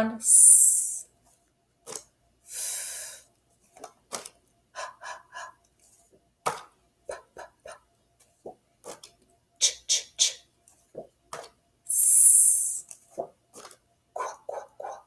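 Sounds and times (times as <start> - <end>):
woman making letter sounds: 0.0 - 1.0, 11.9 - 12.8.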